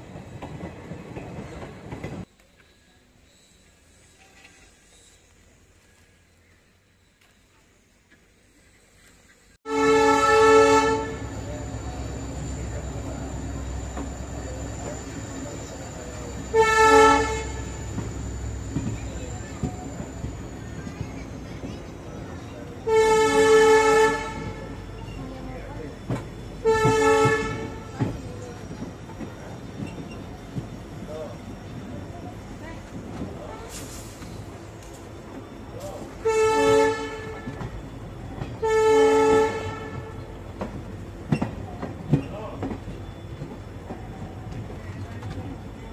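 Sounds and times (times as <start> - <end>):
train rumbling: 0.0 - 45.9
train horn blast: 9.7 - 11.5, 16.4 - 18.0, 22.8 - 24.9, 26.6 - 28.1, 36.2 - 37.7, 38.6 - 40.3.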